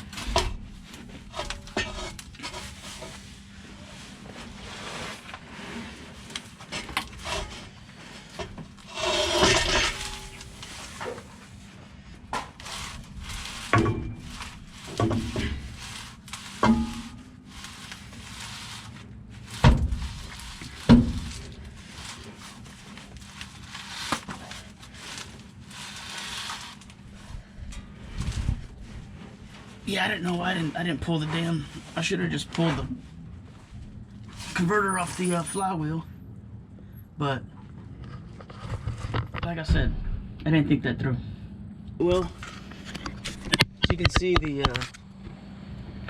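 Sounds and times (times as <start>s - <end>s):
metal scraping: 0.0s - 11.7s, 12.4s - 32.9s
metal tools clanking: 8.4s - 11.4s, 12.6s - 17.3s, 34.4s - 35.8s.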